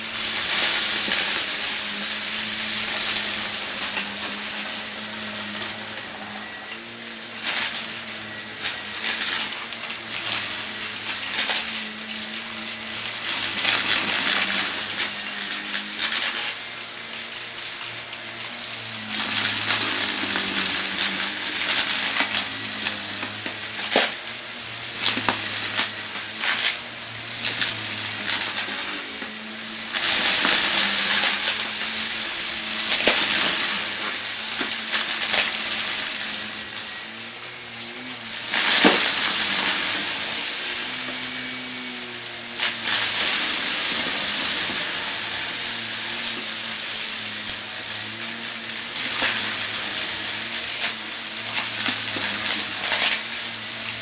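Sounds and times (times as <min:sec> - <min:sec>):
vacuum cleaner sucking up debris: 0:00.0 - 0:54.0.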